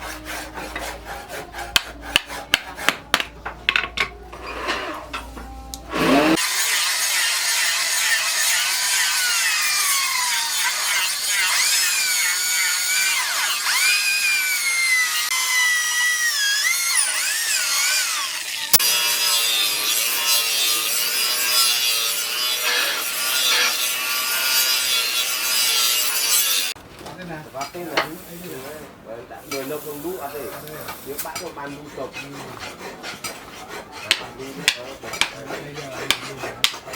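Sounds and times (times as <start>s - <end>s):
hand tool scraping knife: 0.0s - 3.2s, 4.4s - 6.4s, 29.5s - 36.9s.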